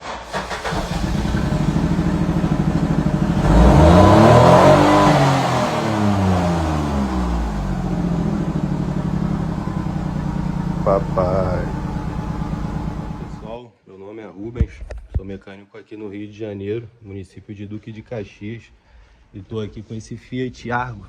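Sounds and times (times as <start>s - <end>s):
car engine idling and revving: 0.0s - 13.5s.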